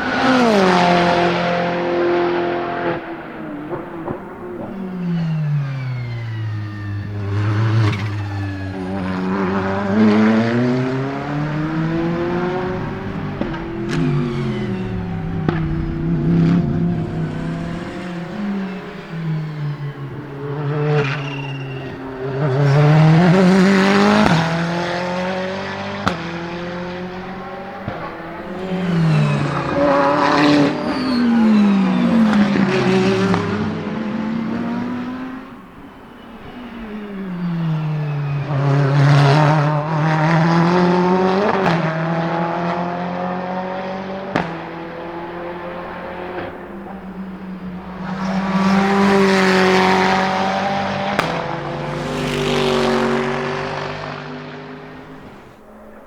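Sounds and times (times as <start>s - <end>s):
exhaust cracks on upshifts: 0.0s - 37.4s, 38.3s - 56.0s
race car engine passing: 0.0s - 56.0s.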